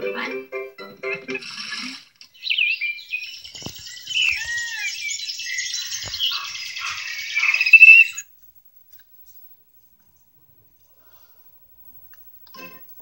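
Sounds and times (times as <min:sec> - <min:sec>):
birds chirping and whistling: 0:02.3 - 0:08.2.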